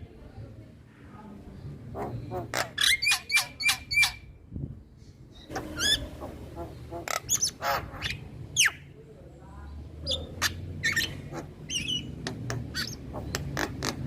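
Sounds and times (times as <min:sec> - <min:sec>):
myna calling: 0:05.5 - 0:08.8.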